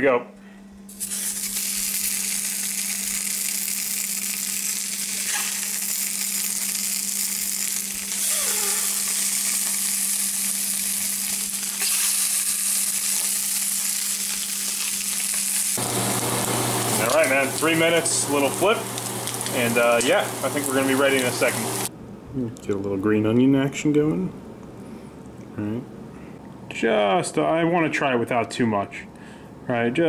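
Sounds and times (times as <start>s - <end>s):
octopus searing in hot pan: 0.9s - 21.9s.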